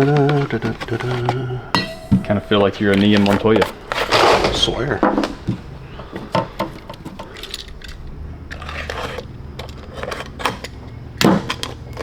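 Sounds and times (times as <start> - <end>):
low steady hum: 0.0 - 9.4.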